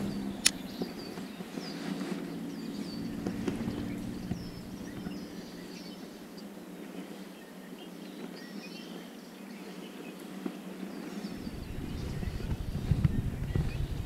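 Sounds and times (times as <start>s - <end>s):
bird chirps: 0.0s - 6.5s, 10.9s - 14.0s
low hum: 0.0s - 6.6s, 11.3s - 14.0s
outdoor background noise: 0.0s - 14.0s.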